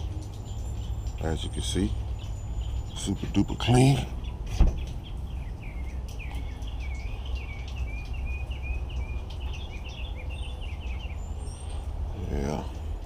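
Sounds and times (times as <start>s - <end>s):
bird chirping song: 0.0s - 13.0s.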